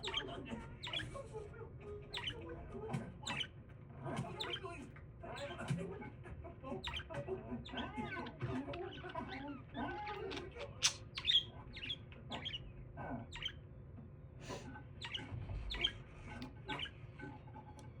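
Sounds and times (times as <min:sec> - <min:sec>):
budgie chirping: 0:00.0 - 0:01.2, 0:02.0 - 0:03.6, 0:04.2 - 0:04.8, 0:06.8 - 0:13.6, 0:15.0 - 0:17.4.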